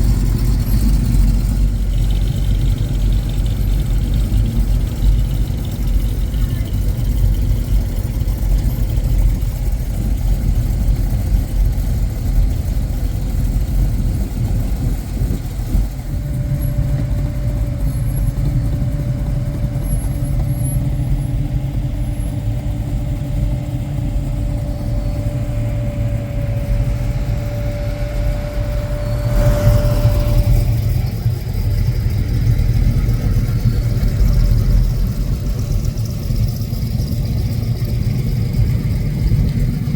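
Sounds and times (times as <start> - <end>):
car engines rumbling: 0.0 - 39.9.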